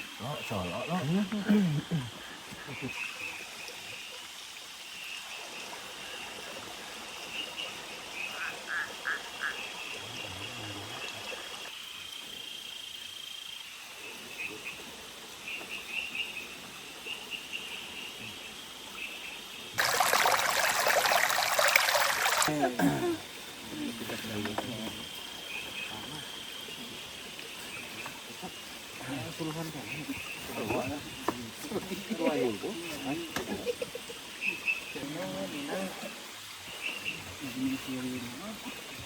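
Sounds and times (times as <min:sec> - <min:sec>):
frogs chirping: 0:00.0 - 0:39.0
steady hiss: 0:00.0 - 0:39.0
water splashing: 0:19.8 - 0:25.2.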